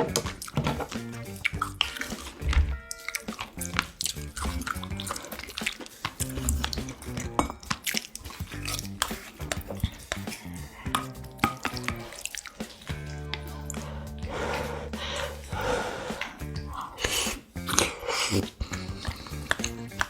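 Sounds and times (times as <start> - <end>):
background music: 0.0 - 20.0
spoon and chopsticks clinking on bowls: 7.2 - 13.5.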